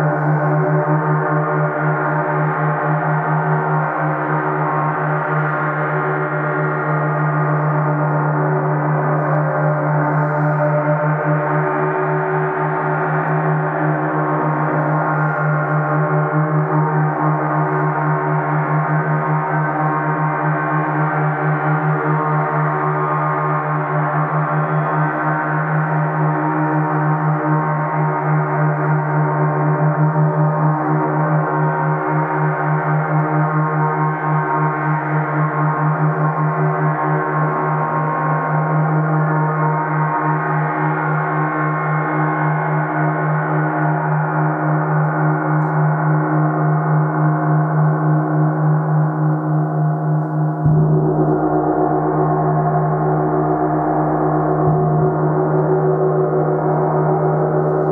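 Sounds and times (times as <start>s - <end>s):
gong ringing: 50.6s - 57.9s.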